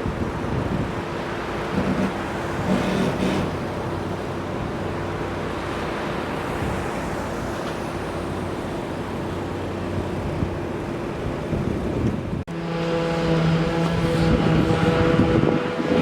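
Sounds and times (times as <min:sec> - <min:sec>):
wind buffeting microphone: 0:00.0 - 0:03.7, 0:11.2 - 0:12.5, 0:13.5 - 0:16.0
engine and traffic noise: 0:00.0 - 0:16.0.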